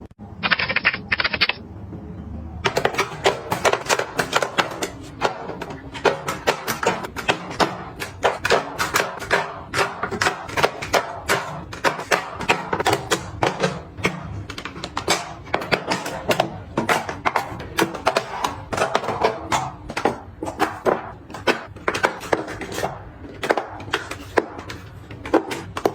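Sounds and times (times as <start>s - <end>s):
small hard items clicking and tapping: 2.6s - 25.9s.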